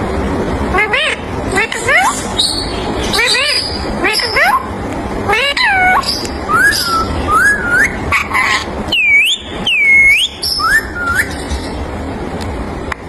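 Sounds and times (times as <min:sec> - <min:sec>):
parakeet whistling: 0:00.8 - 0:04.7, 0:05.3 - 0:11.8.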